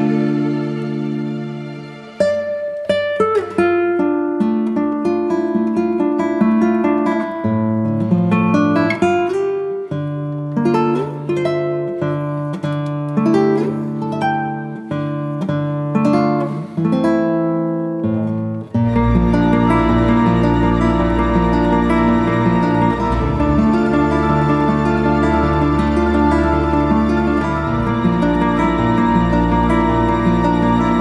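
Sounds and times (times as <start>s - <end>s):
acoustic guitar music: 0.0s - 31.0s.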